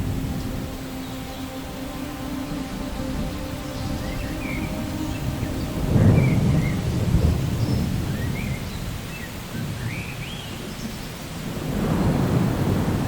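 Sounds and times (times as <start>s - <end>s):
rolling thunder: 0.0s - 1.2s, 2.8s - 10.0s, 11.3s - 13.0s
steady rain: 0.0s - 13.0s.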